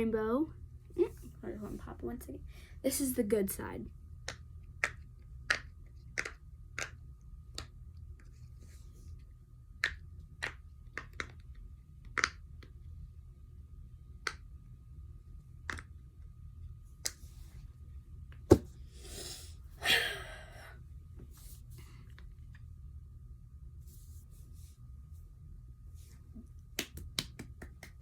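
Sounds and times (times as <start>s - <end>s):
pop-it fidget popping: 4.3s - 7.0s.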